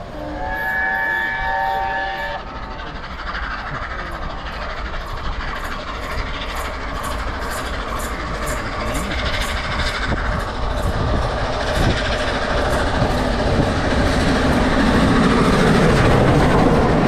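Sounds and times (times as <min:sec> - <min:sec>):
train running along track: 0:00.0 - 0:17.0
train horn blast: 0:00.1 - 0:02.5.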